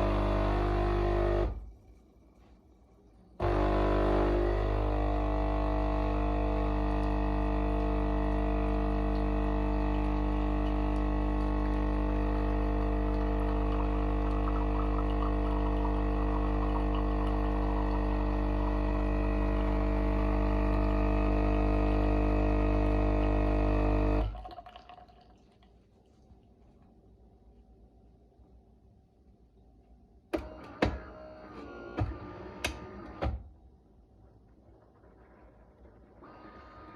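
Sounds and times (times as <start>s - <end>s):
espresso machine pump buzzing: 0.0s - 1.6s, 3.4s - 24.6s.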